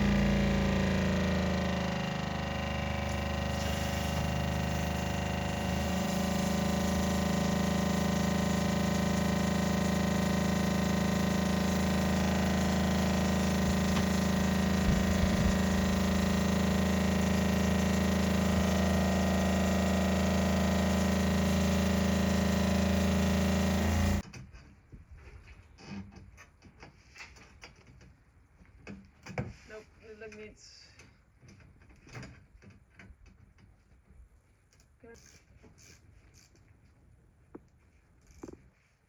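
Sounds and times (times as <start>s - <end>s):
electric motor humming: 0.0s - 24.2s.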